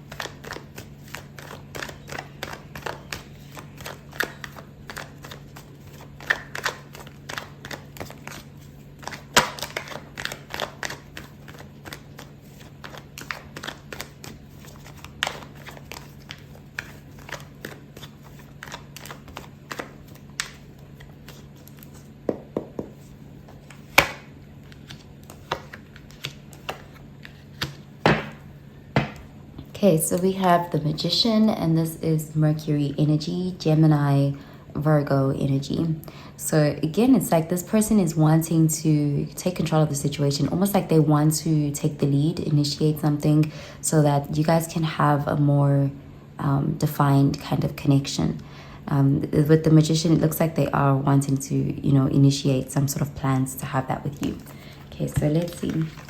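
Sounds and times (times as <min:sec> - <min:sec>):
cards shuffling: 0:00.0 - 0:29.3, 0:54.1 - 0:56.0
cards slapping: 0:00.0 - 0:29.3, 0:54.3 - 0:56.0
faint low hum: 0:00.0 - 0:56.0.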